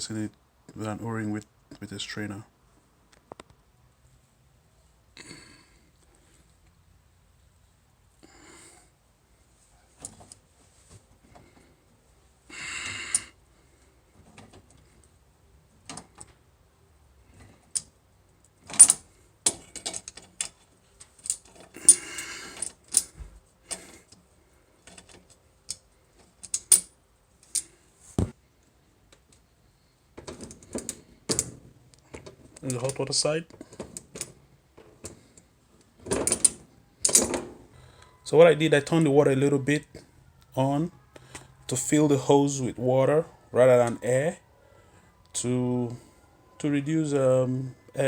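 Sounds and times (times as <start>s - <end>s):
small clicks and clinks: 24.8s - 27.8s.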